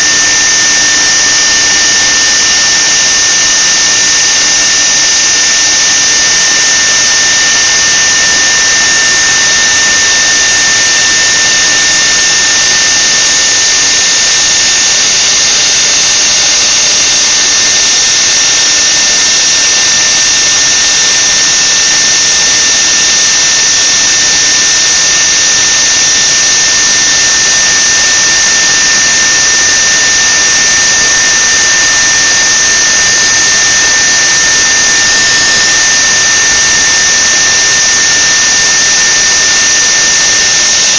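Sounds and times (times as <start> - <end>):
machine high-pitched whine: 0.0 - 40.9
loud hiss: 24.7 - 40.9.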